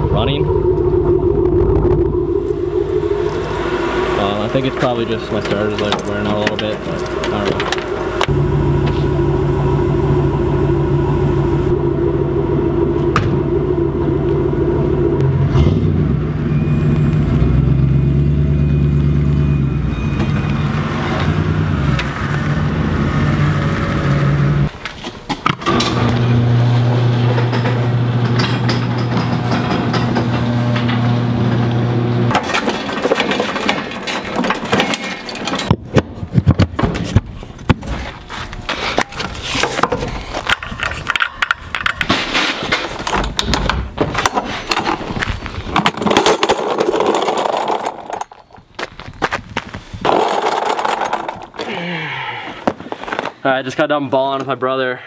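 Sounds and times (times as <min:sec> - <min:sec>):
pickup truck engine running: 0:00.0 - 0:19.7.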